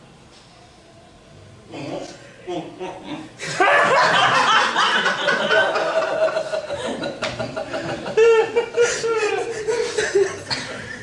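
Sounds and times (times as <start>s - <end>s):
audience laughing: 3.4s - 11.0s.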